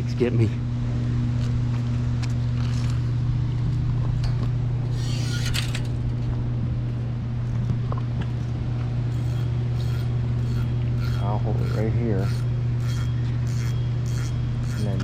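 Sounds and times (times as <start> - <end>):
low machine hum: 0.0 - 15.0
brief rustle: 4.9 - 6.3.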